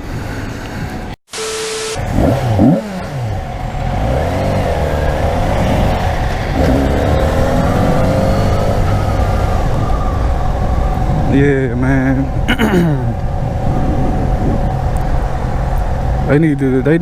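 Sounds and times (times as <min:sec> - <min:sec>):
motorcycle engine revving: 0:01.6 - 0:11.3.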